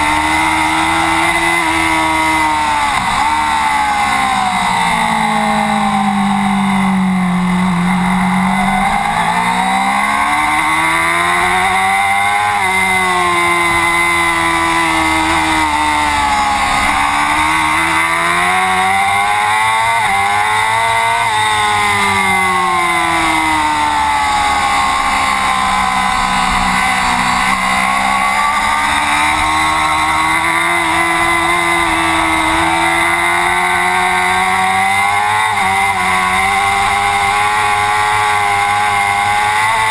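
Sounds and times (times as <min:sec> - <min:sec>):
racing motorcycle engine revving: 0:00.0 - 0:39.9.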